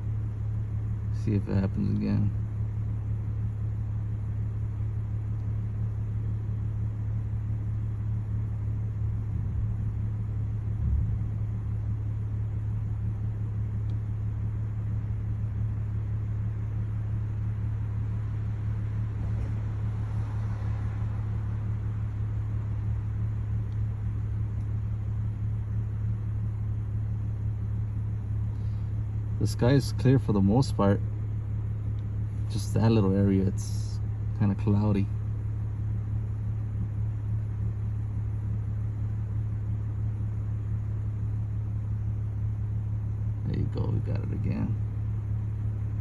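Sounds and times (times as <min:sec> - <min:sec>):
steady low hum: 0:00.0 - 0:46.0
low thump: 0:19.1 - 0:19.8.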